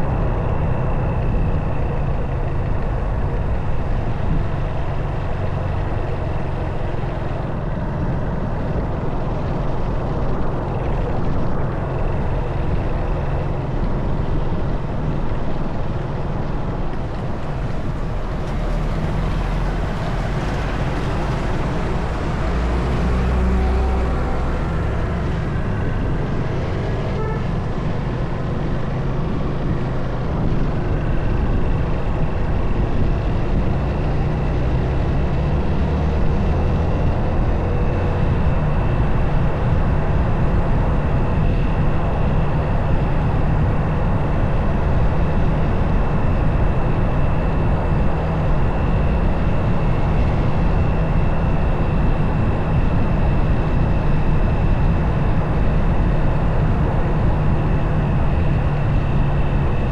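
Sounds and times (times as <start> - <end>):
motorcycle engine rumbling: 5.4 - 30.1.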